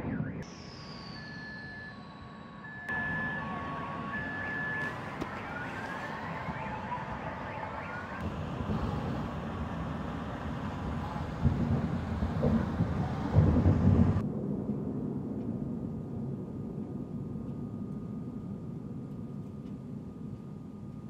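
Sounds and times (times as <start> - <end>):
two-tone siren: 0.0 - 14.0
faint rising siren wails: 0.0 - 14.2
city noise: 0.0 - 21.0.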